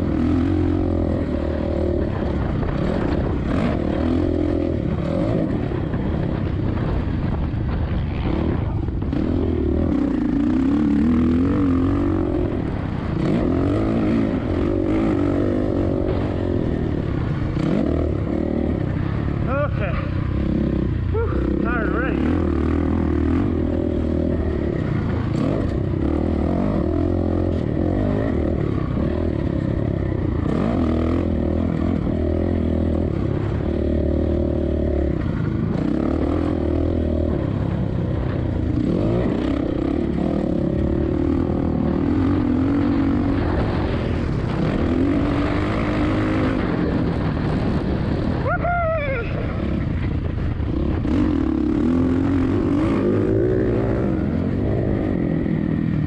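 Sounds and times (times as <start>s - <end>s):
motocross bike engine revving: 0.0s - 48.4s, 49.3s - 56.0s.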